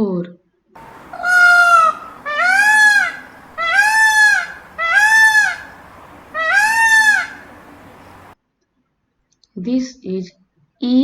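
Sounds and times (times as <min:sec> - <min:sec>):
peacock honking calls: 0:00.8 - 0:08.4.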